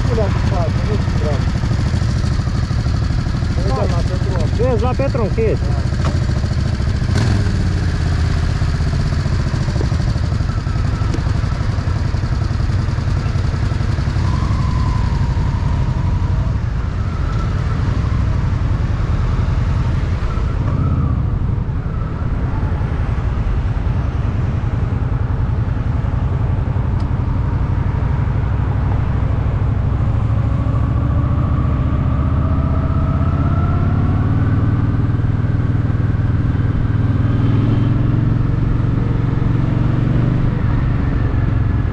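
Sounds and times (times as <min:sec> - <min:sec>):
motorcycle engine running: 0:00.0 - 0:20.1
wind and road noise: 0:00.0 - 0:41.9.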